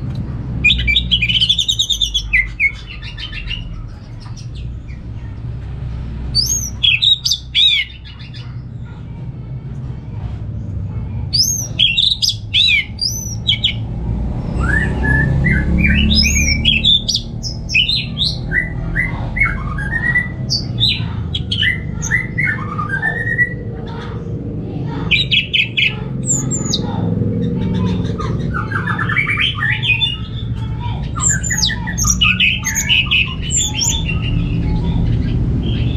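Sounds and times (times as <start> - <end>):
thrush singing whistled song: 14.5 - 23.6, 28.5 - 35.9.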